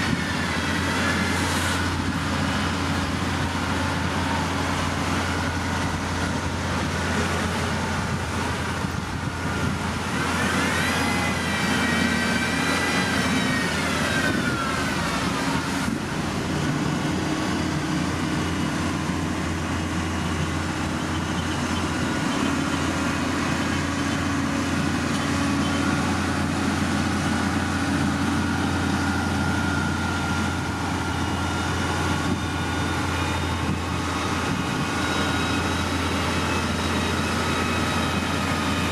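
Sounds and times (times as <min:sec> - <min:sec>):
construction machine engine running: 0:00.0 - 0:38.9.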